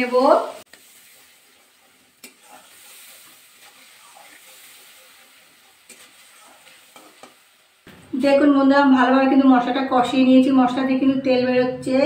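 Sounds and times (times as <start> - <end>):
paste sizzling in oil: 0.0 - 7.9
spatula scraping pan: 0.6 - 7.7.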